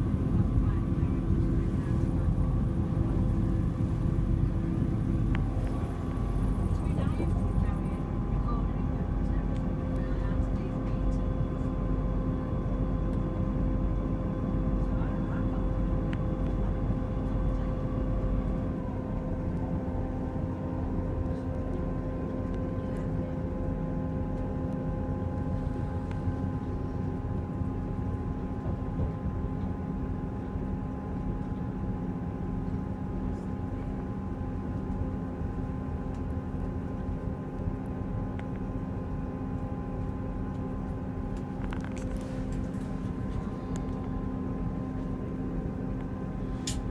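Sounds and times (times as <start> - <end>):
diesel train rumble: 0.0 - 12.9
droning tones: 0.0 - 13.2.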